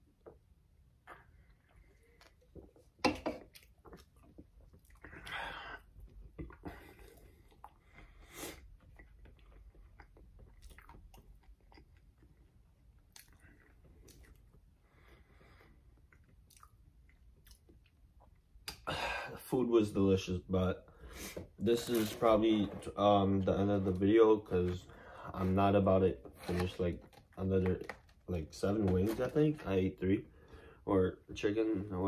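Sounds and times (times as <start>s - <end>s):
person chewing food: 1.1s - 18.8s.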